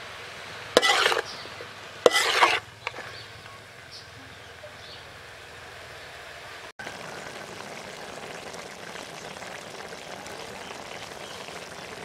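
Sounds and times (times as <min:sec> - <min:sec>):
food sizzling in a wok: 0:00.0 - 0:02.8, 0:06.8 - 0:12.0
juices bubbling and hissing: 0:06.8 - 0:12.0.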